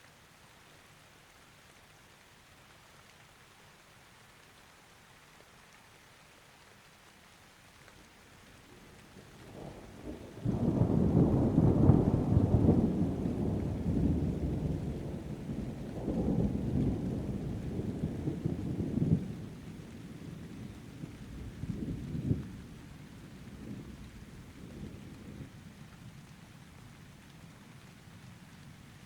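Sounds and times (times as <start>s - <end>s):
rain: 0.0s - 29.0s
rolling thunder: 9.2s - 22.8s.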